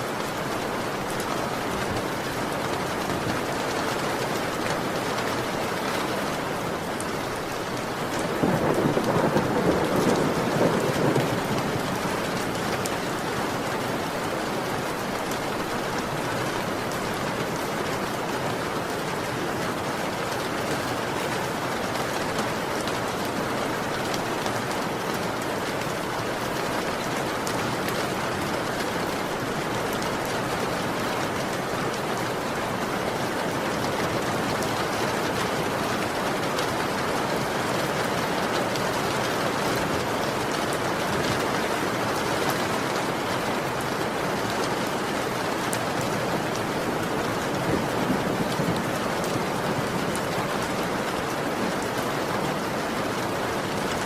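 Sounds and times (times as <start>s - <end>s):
heavy rain falling: 0.0s - 54.0s
thunder rumbling: 8.2s - 12.7s.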